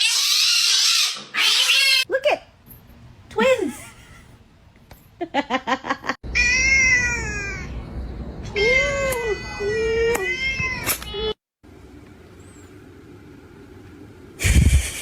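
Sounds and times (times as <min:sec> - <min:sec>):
cats meowing: 0:06.3 - 0:07.8.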